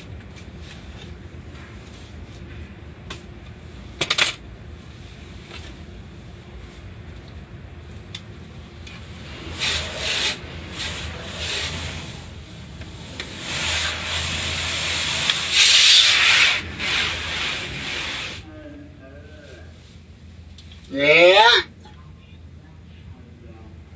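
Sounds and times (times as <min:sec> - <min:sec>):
car wash scrubbing: 0:07.8 - 0:18.5.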